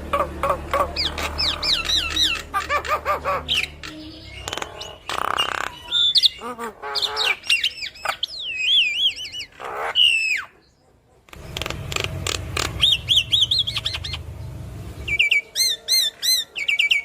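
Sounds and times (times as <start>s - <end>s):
bird harsh raspy squawks: 0.0s - 10.6s, 11.3s - 15.2s
bird singing whistles and chirps: 7.0s - 10.6s, 12.6s - 17.0s.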